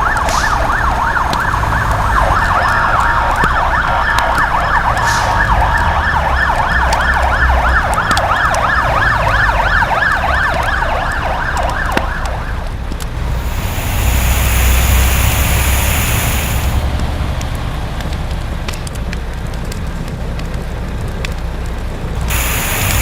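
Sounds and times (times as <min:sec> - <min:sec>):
fire engine sirens yelping: 0:00.0 - 0:23.0
low engine rumble: 0:00.0 - 0:23.0
steady hiss: 0:13.0 - 0:17.2, 0:22.1 - 0:23.0.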